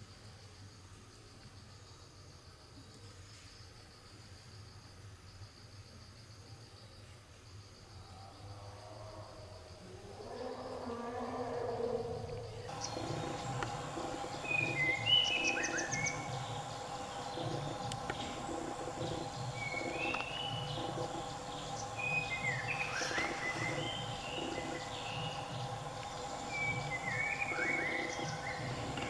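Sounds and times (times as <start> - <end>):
insect drone: 0.0 - 29.0
birds whistling: 12.2 - 29.0.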